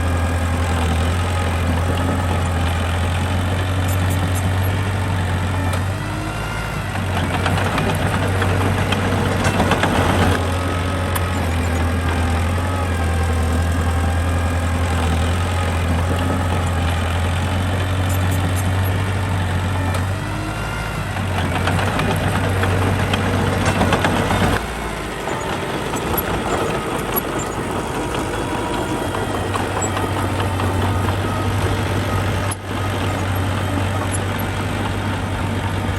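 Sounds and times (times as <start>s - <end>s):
bulldozer diesel engine running: 0.0s - 35.9s
rattling and clanking: 21.1s - 35.9s.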